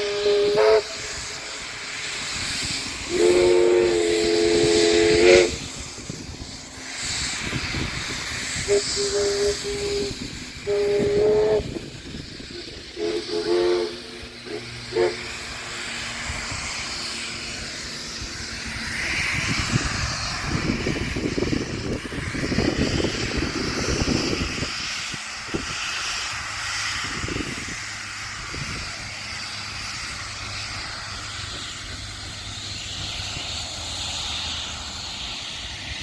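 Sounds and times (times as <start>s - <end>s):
steam locomotive whistle: 0.0s - 1.7s, 3.0s - 5.8s, 8.6s - 15.7s
steam hissing: 0.0s - 36.0s.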